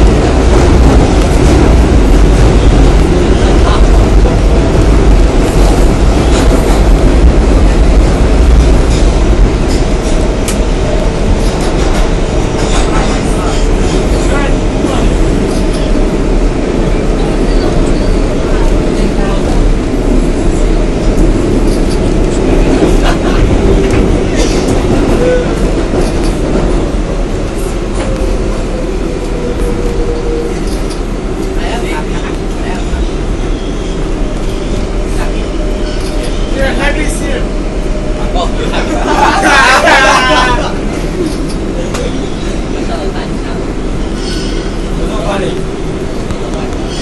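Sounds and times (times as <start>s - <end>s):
train wheels rumbling on rails: 0.0s - 47.0s
train wheels clicking over track: 21.0s - 26.9s.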